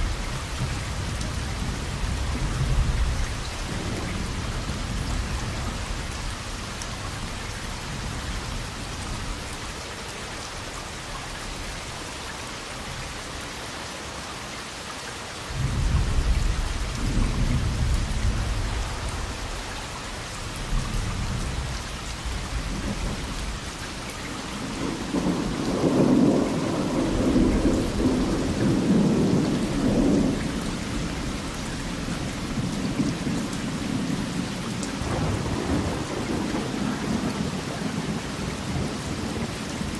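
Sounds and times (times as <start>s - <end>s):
rolling thunder: 0.0s - 6.5s, 15.6s - 19.7s, 24.5s - 39.9s
heavy rain hissing: 0.0s - 39.9s.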